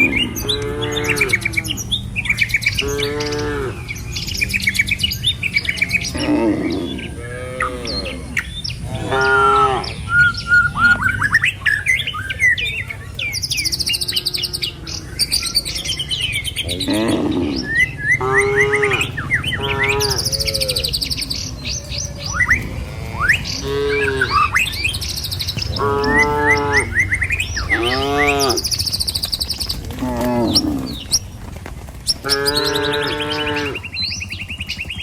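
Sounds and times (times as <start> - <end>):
cattle mooing: 0.0 - 2.0, 2.7 - 4.8, 5.5 - 10.0, 13.7 - 15.6, 16.6 - 28.8, 29.9 - 31.2, 32.2 - 33.9
birds chirping and trilling: 0.0 - 35.0.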